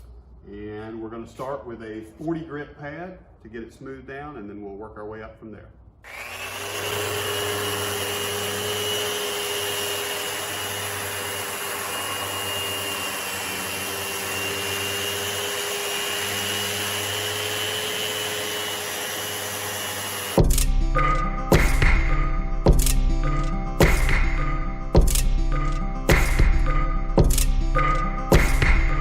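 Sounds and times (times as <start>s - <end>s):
dust extractor running: 6.1s - 20.4s
orbital sander sanding wood: 6.1s - 20.4s.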